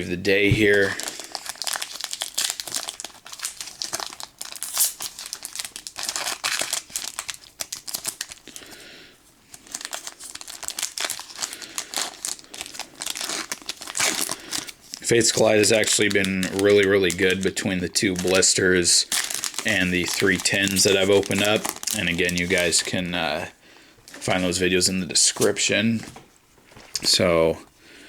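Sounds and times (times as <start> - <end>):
foil wrapper crinkling: 0.6 - 8.9, 9.5 - 23.1.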